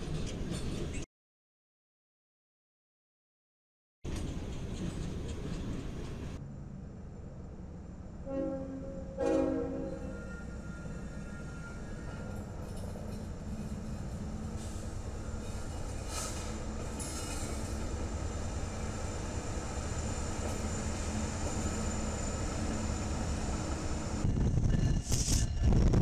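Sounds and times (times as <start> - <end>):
train wheels on rails: 0.0 - 1.0, 4.1 - 6.4, 9.2 - 26.0
diesel locomotive engine rumble: 4.1 - 26.0.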